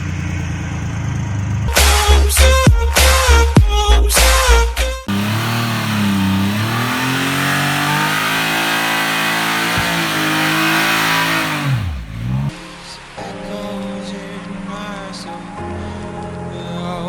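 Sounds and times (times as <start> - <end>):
motorcycle engine revving: 5.1 - 12.6.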